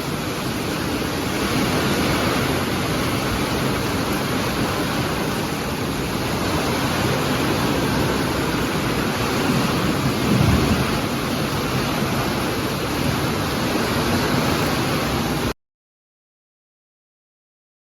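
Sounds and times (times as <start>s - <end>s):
heavy rain falling: 0.0s - 15.6s
low rumble: 9.6s - 11.9s.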